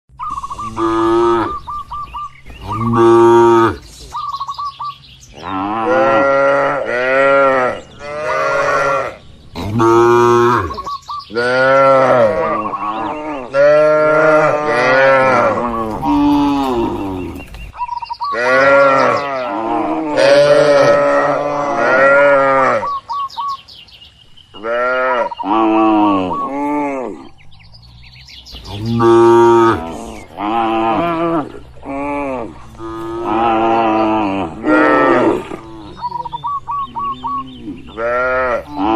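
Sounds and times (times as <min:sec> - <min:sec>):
cattle mooing: 0:00.5 - 0:01.7, 0:02.6 - 0:03.8, 0:05.4 - 0:17.4, 0:18.3 - 0:23.0, 0:28.6 - 0:38.9.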